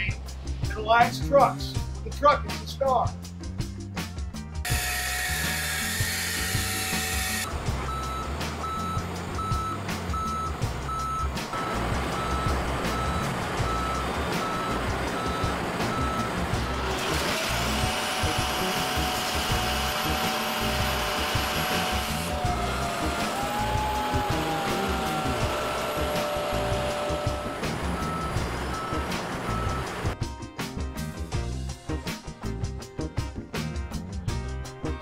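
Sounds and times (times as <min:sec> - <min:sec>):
garbage truck working noise: 0:04.7 - 0:30.2
hydraulic whine: 0:04.7 - 0:30.2
reversing alarm beeping: 0:07.0 - 0:16.4, 0:22.5 - 0:30.2.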